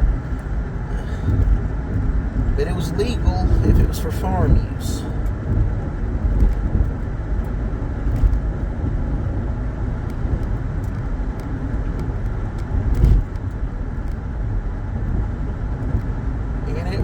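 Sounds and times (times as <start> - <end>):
car tyres and engine rumble: 0.0 - 17.0
car bump: 0.2 - 2.6.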